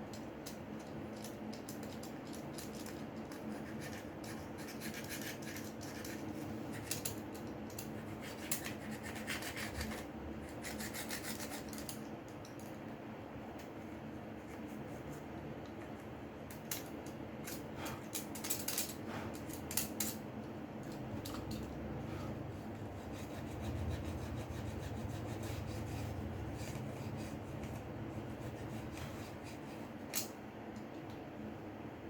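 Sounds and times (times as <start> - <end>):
rubbing and scraping on phone: 7.8 - 11.9, 14.3 - 15.3, 22.0 - 30.1.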